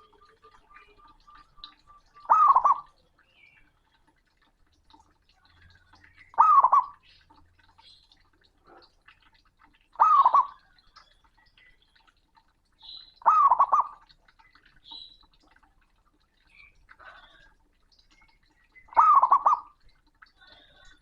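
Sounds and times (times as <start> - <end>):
dove cooing: 0.0 - 3.0, 6.4 - 7.0, 13.2 - 14.0, 19.0 - 19.7.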